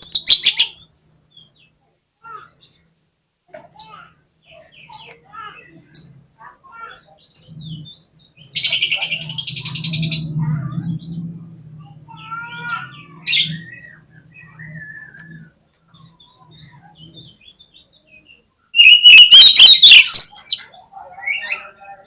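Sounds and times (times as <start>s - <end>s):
warbled bird song: 0.0s - 22.0s
bird calling with sharp notes: 12.1s - 21.8s.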